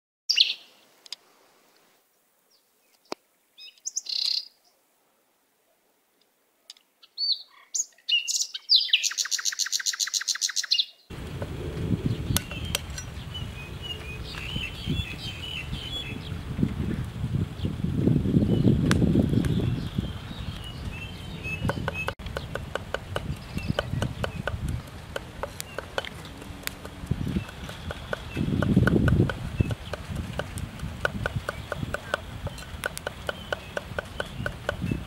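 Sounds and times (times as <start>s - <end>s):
birds chirping and calling: 0.3s - 0.7s, 2.8s - 4.6s, 6.7s - 16.7s, 18.4s - 35.0s
low steady rumble: 11.1s - 17.9s
rapid bird trill: 19.7s - 30.4s, 31.0s - 35.0s
sharp knocks: 21.6s - 34.9s.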